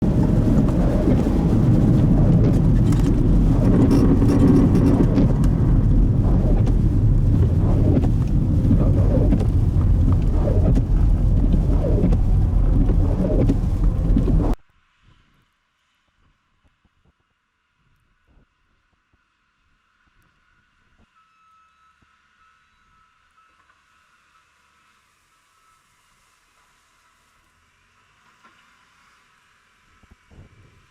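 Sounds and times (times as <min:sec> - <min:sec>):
highway traffic rumble: 0:00.0 - 0:14.6
strong blizzard wind: 0:00.0 - 0:14.6.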